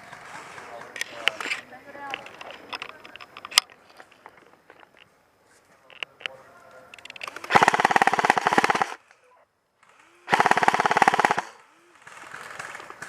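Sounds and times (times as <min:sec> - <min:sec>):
airsoft gun full-auto bursts: 0:07.2 - 0:09.0, 0:09.8 - 0:13.0.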